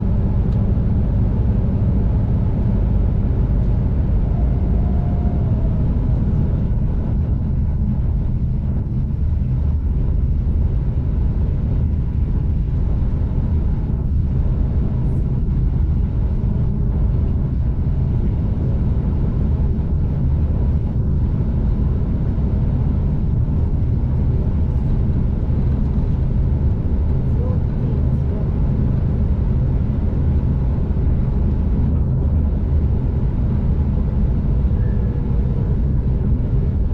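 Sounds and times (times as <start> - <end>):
train rumbling heard on board: 0.0 - 36.9.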